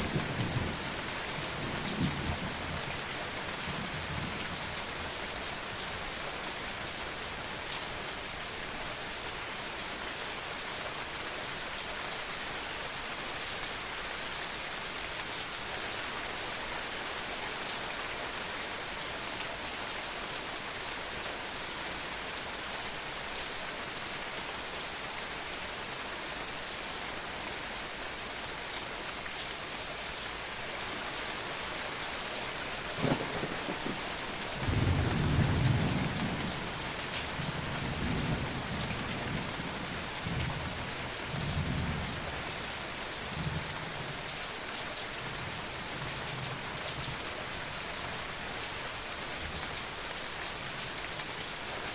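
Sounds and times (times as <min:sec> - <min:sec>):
rain on hard surfaces: 0:00.0 - 0:51.9
thunder crack and rumble: 0:33.0 - 0:36.6.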